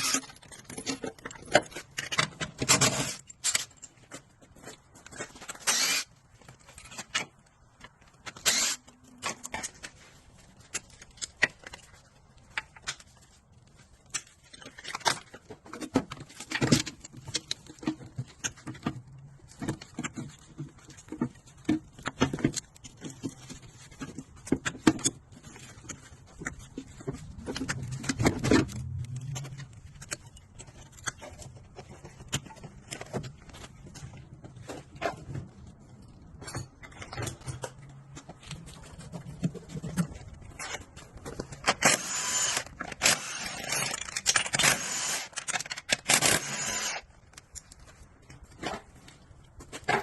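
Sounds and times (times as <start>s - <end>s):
clicks and knocks of handling: 9.1s - 41.9s.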